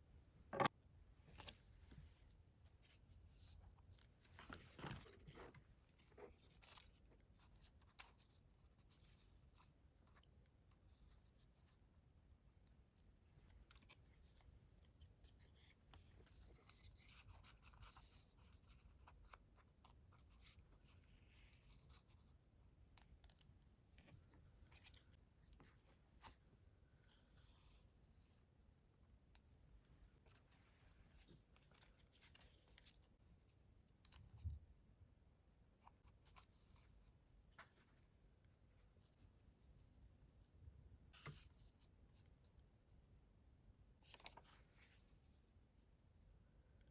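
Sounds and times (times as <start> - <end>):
paper rustling and scratching: 2.7 - 10.4, 13.0 - 22.4, 31.2 - 33.2.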